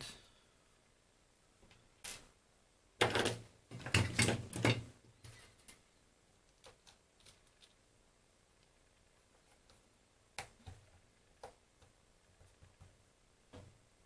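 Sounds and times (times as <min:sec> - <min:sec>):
plastic parts clattering and rubbing: 0:03.0 - 0:05.8.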